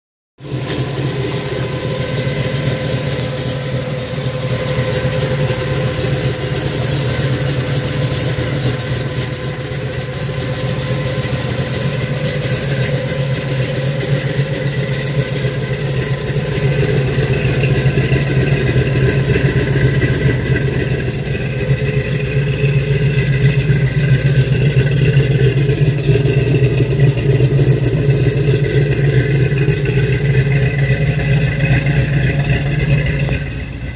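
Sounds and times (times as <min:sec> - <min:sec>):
car engine idling: 0:00.4 - 0:33.9.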